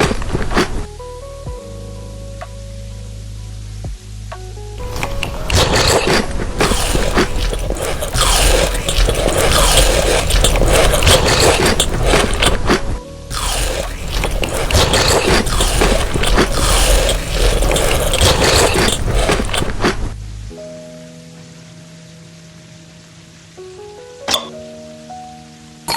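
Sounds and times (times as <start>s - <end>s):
faint background music: 0.0s - 25.9s
chocolate being eaten: 4.8s - 12.7s, 13.3s - 19.8s.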